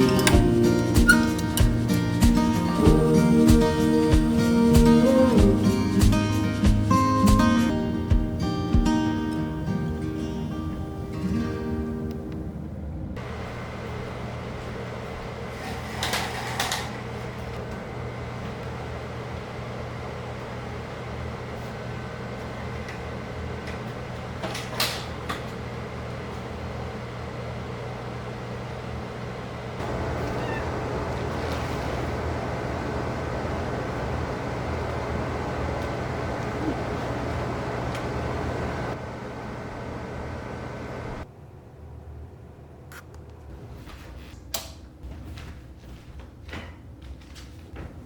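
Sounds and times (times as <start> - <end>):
loud steady noise: 0.0 - 11.3
steady household hum: 0.0 - 48.0
cat meowing: 30.2 - 30.9.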